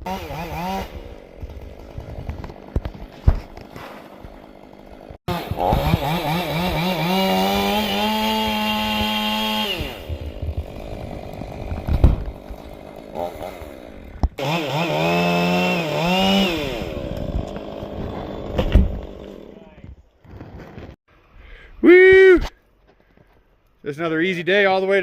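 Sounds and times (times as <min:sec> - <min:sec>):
chainsaw revving: 0:00.0 - 0:19.7.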